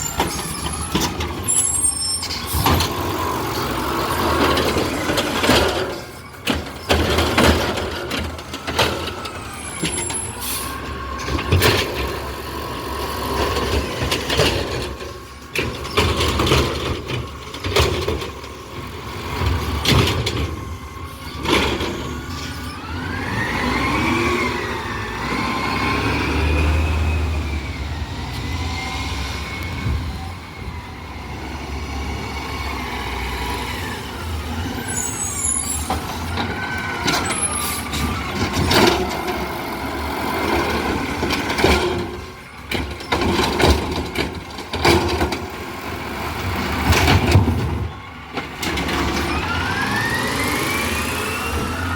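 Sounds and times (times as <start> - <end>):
truck engine whining: 0.0 - 51.9
garbage truck knocks and bangs: 41.1 - 45.6, 46.5 - 48.0.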